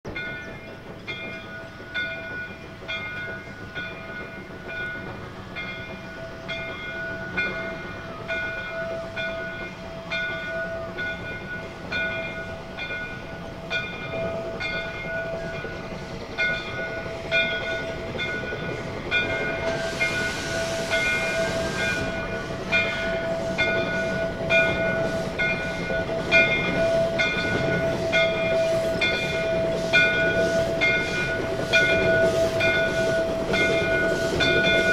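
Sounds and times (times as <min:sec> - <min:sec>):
steam hissing: 0:00.1 - 0:34.9
steam locomotive working: 0:00.1 - 0:34.9.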